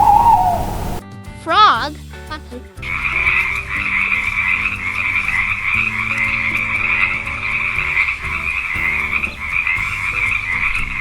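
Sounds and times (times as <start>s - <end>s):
frogs croaking: 0.0s - 1.0s.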